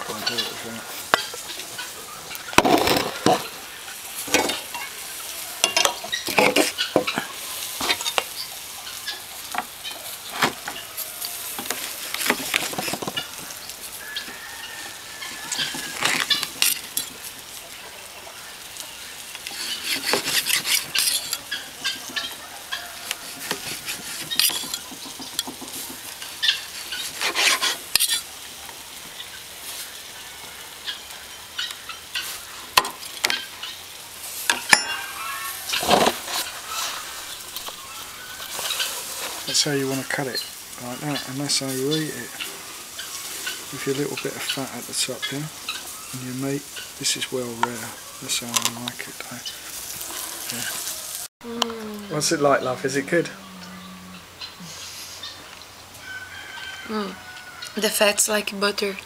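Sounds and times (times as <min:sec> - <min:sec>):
meat sizzling on barbecue: 0:00.0 - 0:59.0
cutlery clicking and scraping: 0:05.6 - 0:07.2, 0:19.5 - 0:22.3, 0:23.3 - 0:26.1, 0:26.7 - 0:28.3.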